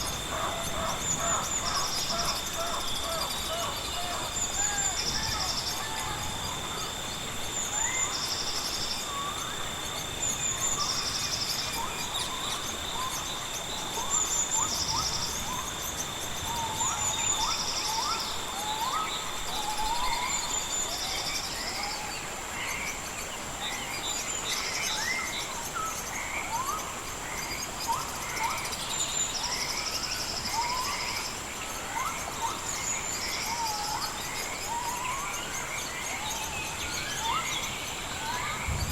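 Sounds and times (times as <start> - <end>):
birds chirping: 0.0 - 7.1
even hiss: 36.6 - 38.9
steady high whine: 37.8 - 38.9.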